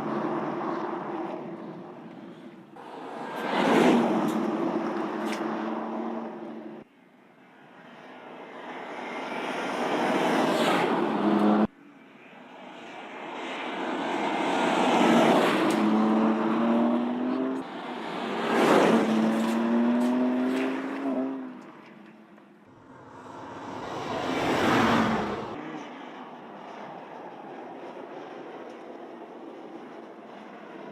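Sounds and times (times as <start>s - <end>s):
car engine accelerating past: 22.8s - 25.9s.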